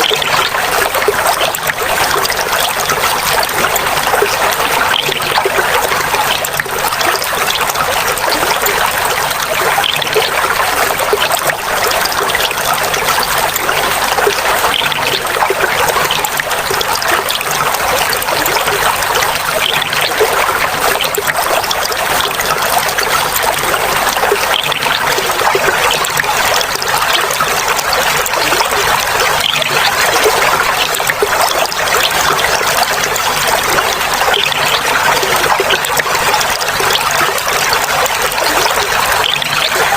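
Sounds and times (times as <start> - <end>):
water trickling and babbling: 0.0 - 39.9.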